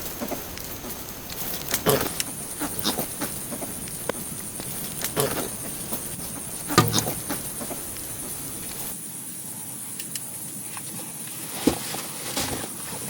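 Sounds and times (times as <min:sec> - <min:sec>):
high outdoor hiss: 0:00.0 - 0:11.3
sharp wooden knocks: 0:03.4 - 0:08.9.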